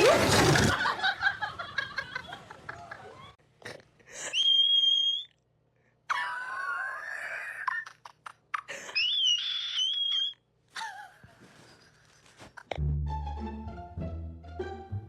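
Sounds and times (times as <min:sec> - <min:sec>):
high-pitched wailing cries: 0:08.8 - 0:10.4.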